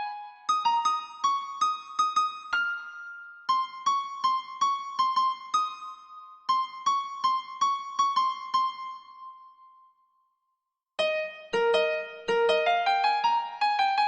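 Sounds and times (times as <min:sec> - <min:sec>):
electric piano melody: 0:11.0 - 0:14.0.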